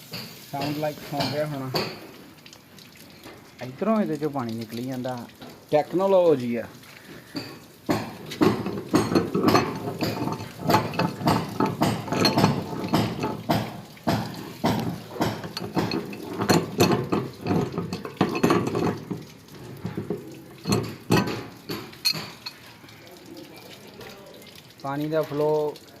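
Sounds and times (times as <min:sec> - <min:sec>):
water running and dripping: 0:00.0 - 0:26.0
metallic clinks and knocks: 0:07.3 - 0:22.7.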